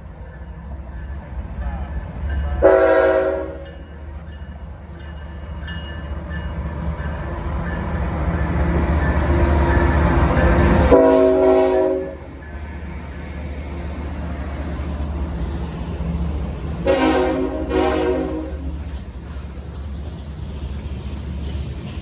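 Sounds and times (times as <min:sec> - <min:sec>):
train rumble: 0:00.0 - 0:22.0
locomotive air horn blast: 0:02.6 - 0:03.6, 0:10.9 - 0:12.3, 0:16.8 - 0:18.7.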